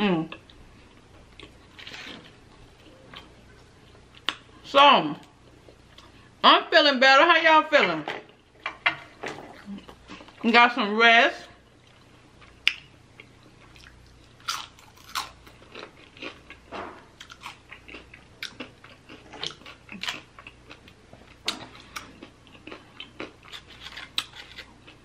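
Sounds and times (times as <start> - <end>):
tortilla chips crunching: 13.6 - 16.6, 17.2 - 25.0.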